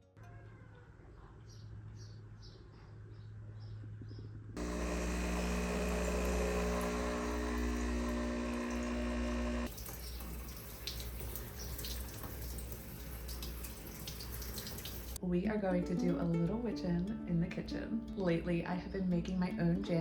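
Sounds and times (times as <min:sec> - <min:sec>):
tap water running into sink: 0:05.3 - 0:15.2
water splashing: 0:09.7 - 0:15.2.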